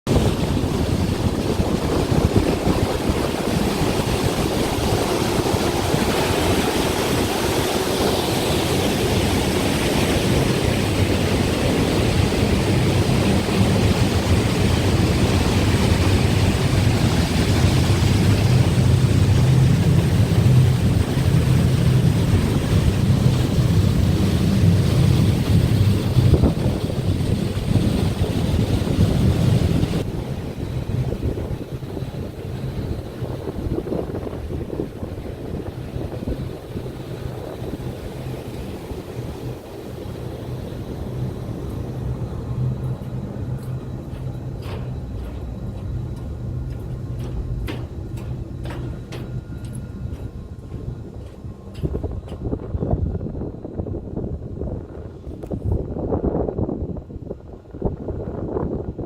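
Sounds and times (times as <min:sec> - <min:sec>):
water rushing over gate: 0:00.1 - 0:43.5
low rumble: 0:00.1 - 0:59.0.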